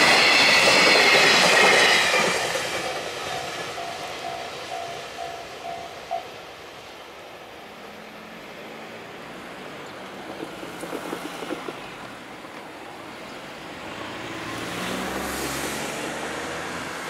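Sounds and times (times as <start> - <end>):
distant freight train rumble: 0.0 - 17.0
vehicle passing: 13.7 - 17.0.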